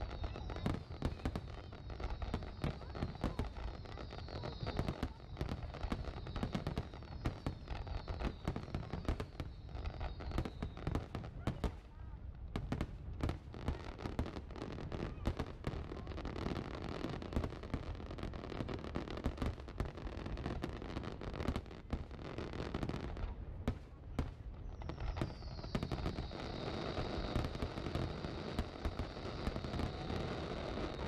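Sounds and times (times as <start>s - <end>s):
long high firework whistle: 0.0s - 11.2s, 24.6s - 31.0s
fireworks bangs and crackling: 0.0s - 31.0s.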